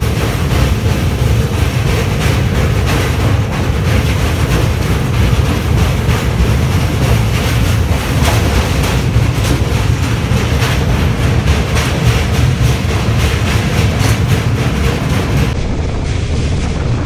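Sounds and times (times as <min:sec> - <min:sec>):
wheels clattering over rails: 0:00.0 - 0:15.6
train rumbling: 0:00.0 - 0:17.0.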